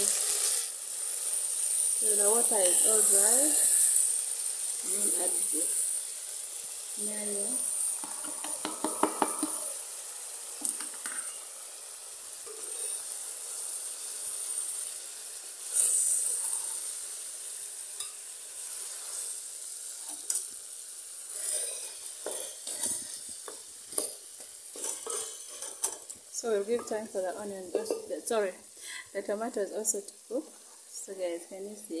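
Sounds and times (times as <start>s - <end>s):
food sizzling in a pot: 0.0s - 32.0s
wooden spoon knocking against pot: 8.0s - 9.6s.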